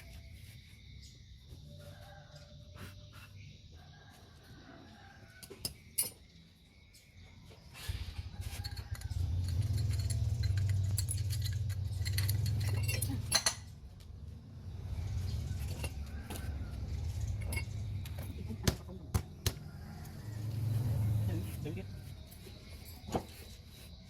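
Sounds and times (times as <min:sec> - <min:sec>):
metal parts clinking: 0:08.4 - 0:13.8.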